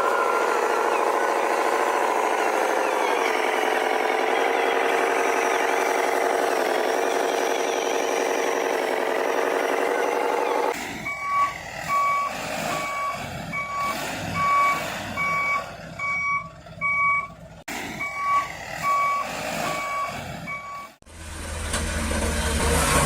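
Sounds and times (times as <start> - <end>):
short electronic reversing beeps: 10.1 - 17.4, 18.0 - 21.0.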